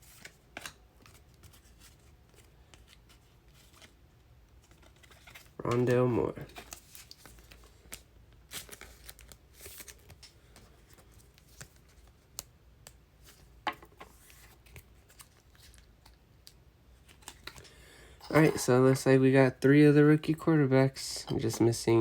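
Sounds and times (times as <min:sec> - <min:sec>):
cards rustling: 0:04.6 - 0:16.2, 0:17.0 - 0:19.1.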